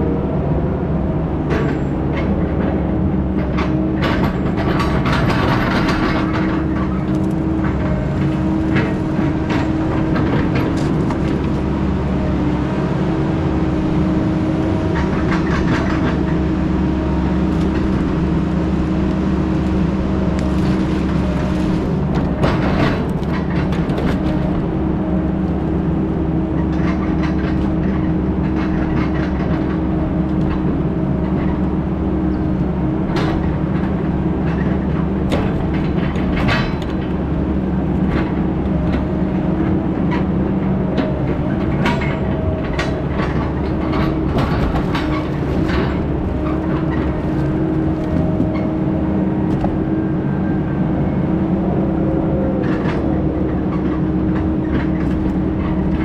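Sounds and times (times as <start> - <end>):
heavy diesel engine under load: 0.0 - 56.0
metal rattling and clanking: 1.5 - 11.8, 14.9 - 31.7, 33.0 - 40.4, 41.0 - 50.0.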